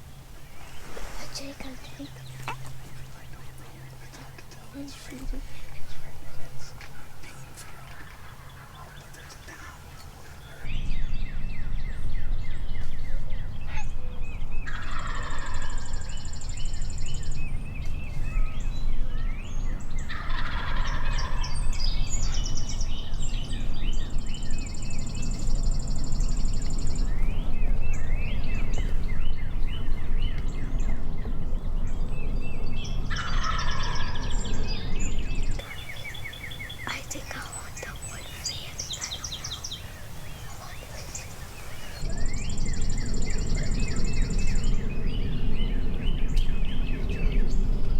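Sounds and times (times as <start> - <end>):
small birds chirping: 0.0 - 47.9
turkeys gobbling: 14.7 - 15.7, 20.1 - 21.5.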